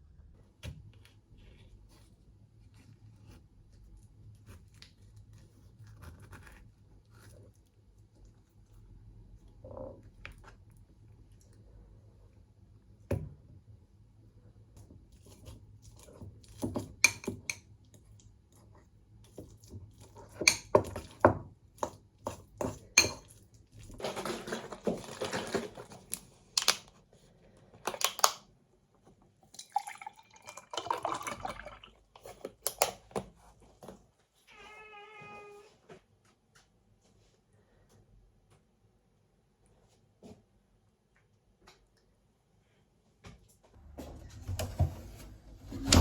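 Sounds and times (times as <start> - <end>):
running liquid: 29.5 - 32.3.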